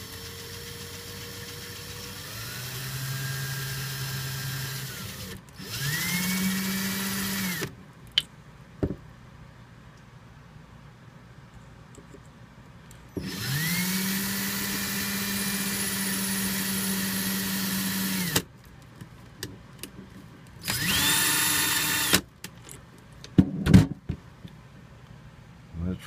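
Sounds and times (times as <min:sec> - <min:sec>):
electric drill whining: 0:00.0 - 0:07.7, 0:13.2 - 0:18.4, 0:20.6 - 0:22.2.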